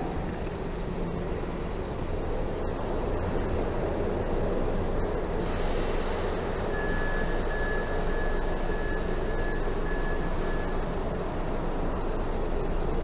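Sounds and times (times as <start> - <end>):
high steady squeal: 5.2 - 13.0.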